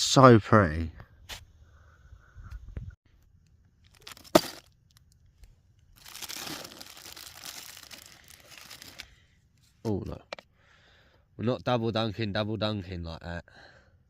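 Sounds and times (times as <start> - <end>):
plastic packaging crinkling: 3.8 - 5.2, 5.8 - 9.2.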